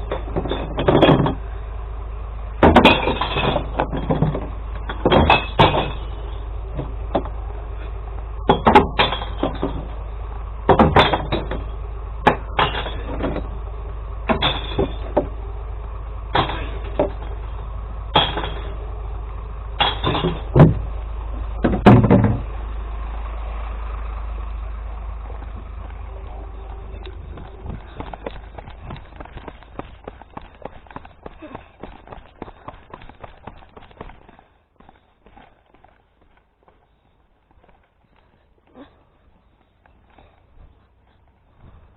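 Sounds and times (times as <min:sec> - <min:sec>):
glass crashing into truck: 0:00.0 - 0:01.4, 0:02.6 - 0:06.4, 0:08.5 - 0:10.0, 0:10.7 - 0:13.5, 0:14.3 - 0:15.3, 0:16.3 - 0:17.3, 0:18.1 - 0:18.8, 0:19.8 - 0:20.9, 0:21.6 - 0:22.5
truck engine idling: 0:00.0 - 0:41.9.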